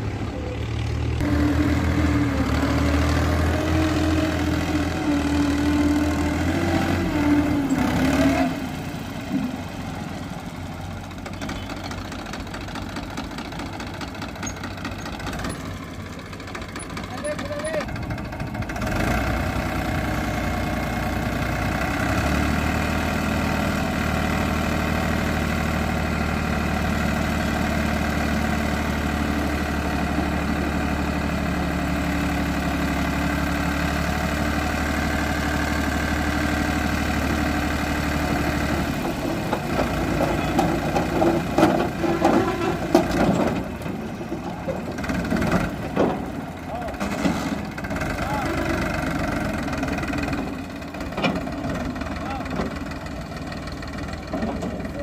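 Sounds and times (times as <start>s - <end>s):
tractor diesel engine droning: 0.0s - 55.0s
irregular knocks and rattles: 39.0s - 46.4s.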